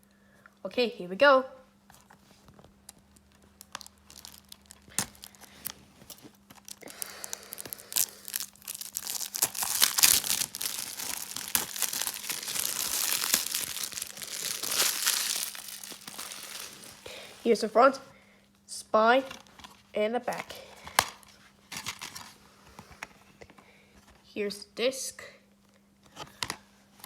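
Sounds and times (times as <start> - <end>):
plastic wrapping crinkling and tearing: 2.0 - 17.7.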